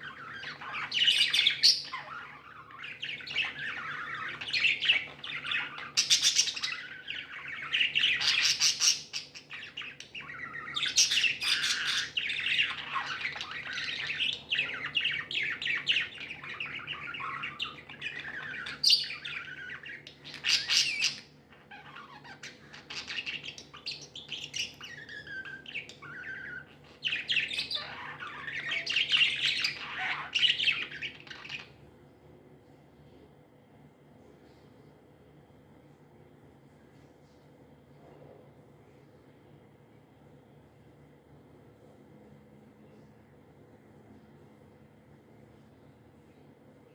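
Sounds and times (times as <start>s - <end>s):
budgerigars chirping and chattering: 0.0s - 31.8s.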